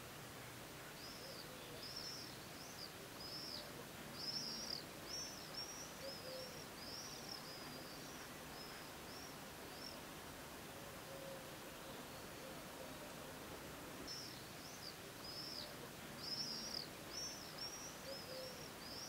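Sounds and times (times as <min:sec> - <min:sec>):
faint outdoor background noise: 0:00.0 - 0:19.0
bird chirping: 0:00.8 - 0:10.0, 0:14.0 - 0:19.0.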